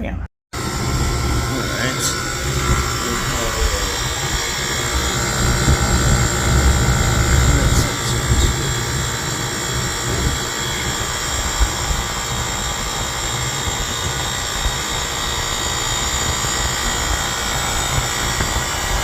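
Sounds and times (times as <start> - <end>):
hvac unit whirring and humming: 0.5 - 19.0.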